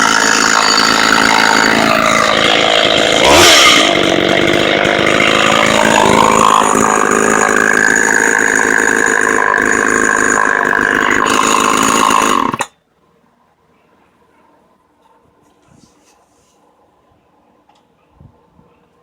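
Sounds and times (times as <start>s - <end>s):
chainsaw running at high revs: 0.0s - 12.7s.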